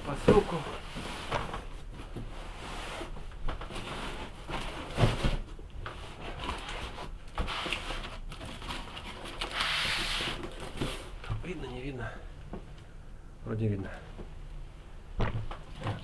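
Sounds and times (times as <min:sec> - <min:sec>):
packaging rustling: 0:07.6 - 0:11.4
dull thump: 0:15.2 - 0:16.0.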